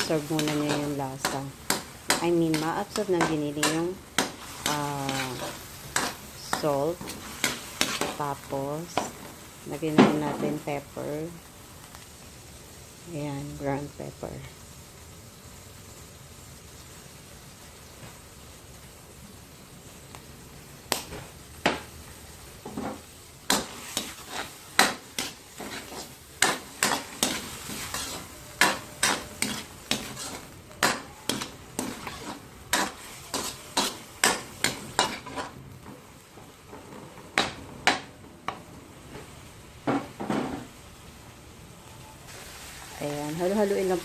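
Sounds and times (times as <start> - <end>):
utensil scraping a pan: 0.0 - 9.2, 22.7 - 35.6
meat sizzling in a frying pan: 0.0 - 44.0.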